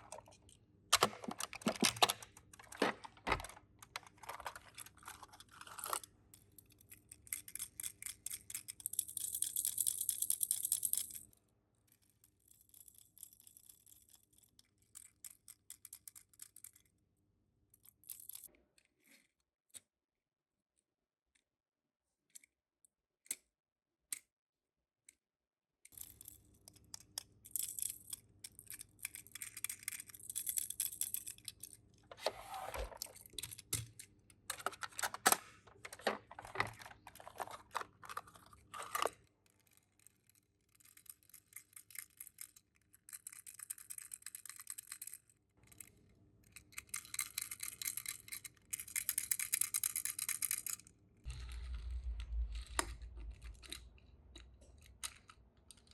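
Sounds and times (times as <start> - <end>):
packaging clicks: 1.0 - 6.1, 31.6 - 39.2
packaging crinkling and tearing: 34.8 - 39.2.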